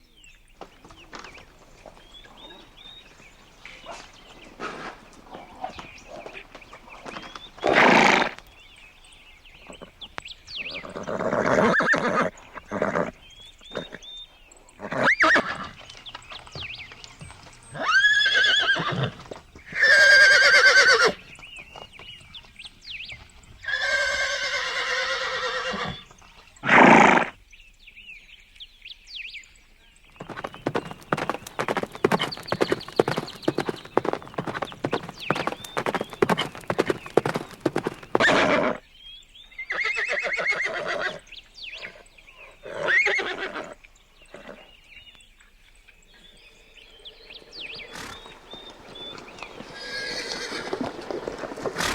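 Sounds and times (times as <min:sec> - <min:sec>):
rapid hoofbeats: 0:00.6 - 0:08.4, 0:30.2 - 0:38.5, 0:47.8 - 0:51.9
horses neighing: 0:00.7 - 0:08.4, 0:17.8 - 0:21.3, 0:30.2 - 0:38.8, 0:47.8 - 0:51.9.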